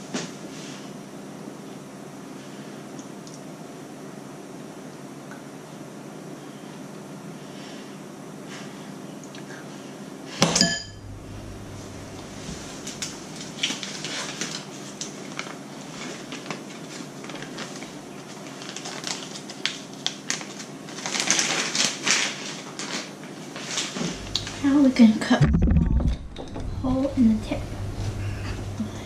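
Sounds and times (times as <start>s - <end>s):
spoon clinking and scraping bowl: 10.6s - 11.0s
spoon ringing on metal bowl: 10.6s - 11.0s.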